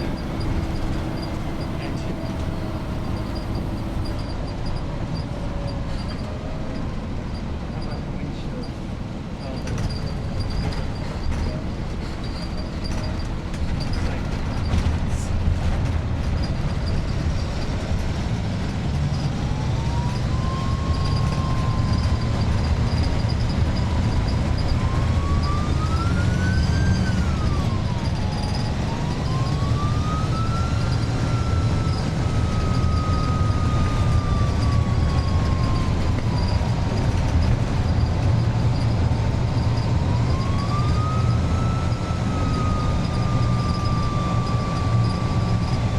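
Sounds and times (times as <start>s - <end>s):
bus diesel engine running: 0.0s - 45.9s
turbocharger whistle: 19.8s - 36.7s, 39.5s - 45.9s.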